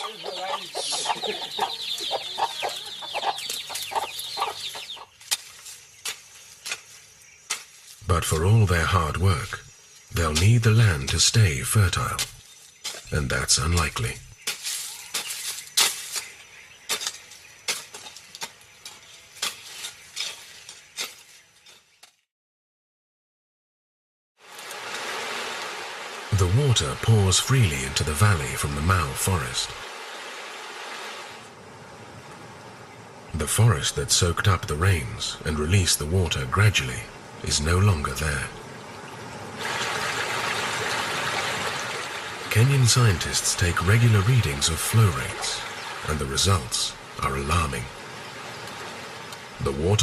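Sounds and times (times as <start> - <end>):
chickens clucking: 0.0 - 5.2.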